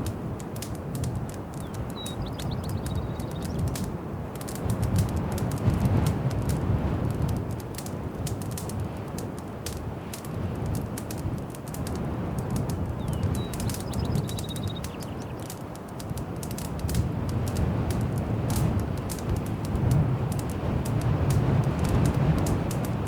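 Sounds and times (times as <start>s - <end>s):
wood fire crackling and popping: 0.0s - 23.0s
faint high chirp: 13.0s - 15.4s.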